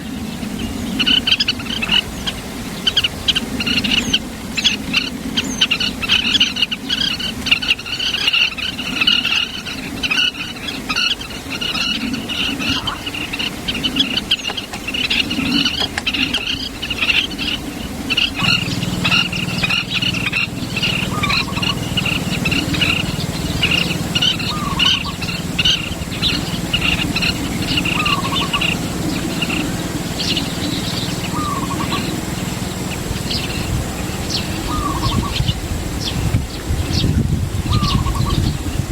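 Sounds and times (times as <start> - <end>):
birds chirping rapidly: 0.0 - 38.9
low steady hum: 10.9 - 38.9.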